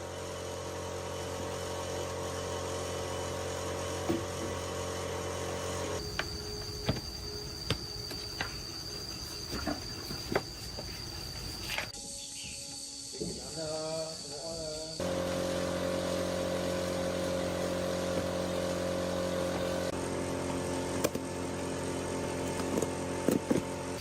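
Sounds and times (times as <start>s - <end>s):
machine humming: 12.8s - 24.0s.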